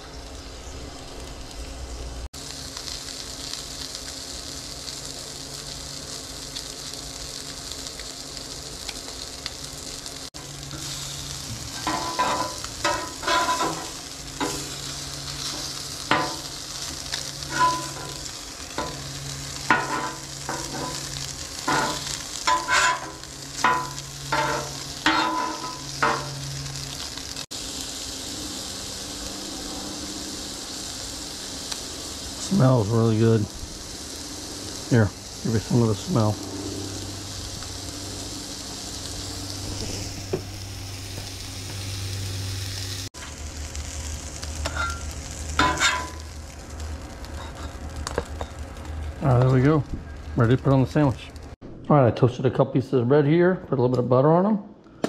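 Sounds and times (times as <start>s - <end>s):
fish sizzling on a griddle: 0.0s - 51.5s
metal spatula scraping griddle: 10.7s - 16.4s, 17.4s - 18.2s, 19.7s - 26.4s, 44.6s - 46.2s.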